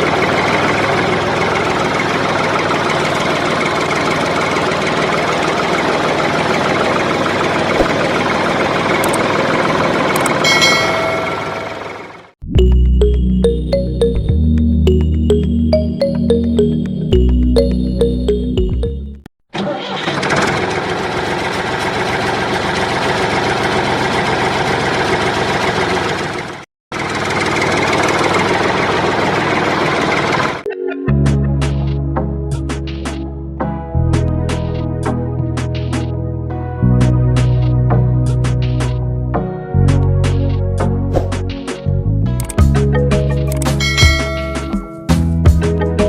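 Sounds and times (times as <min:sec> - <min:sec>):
tractor engine idling: 0:00.0 - 0:12.2.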